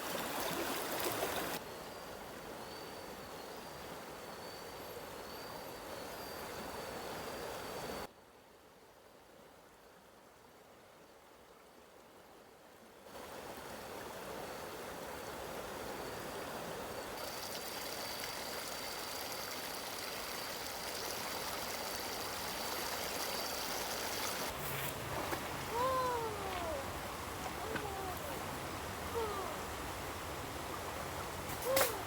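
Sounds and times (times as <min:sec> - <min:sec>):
running water rushing: 0:00.0 - 0:01.6, 0:17.0 - 0:32.0.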